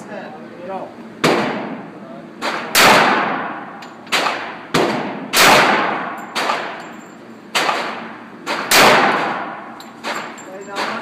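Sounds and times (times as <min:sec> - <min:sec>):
handgun shots echoing: 0:02.4 - 0:06.9, 0:07.5 - 0:11.0.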